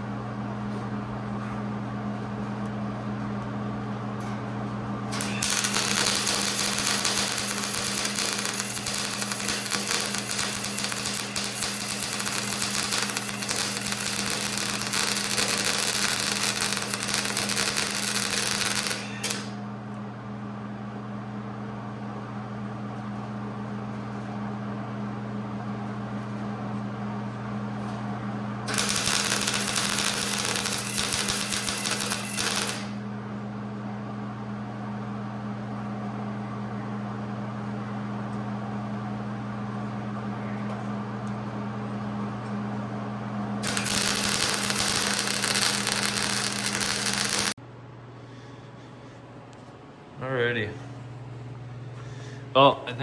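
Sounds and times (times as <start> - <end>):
wire wheel grinder scratching metal: 5.2 - 19.5, 28.7 - 32.9, 43.6 - 47.6.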